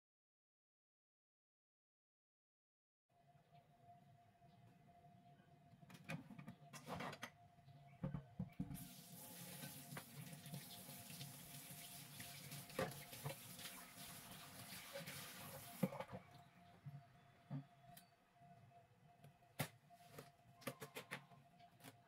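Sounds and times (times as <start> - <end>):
tap running into sink: 12.2 - 13.7.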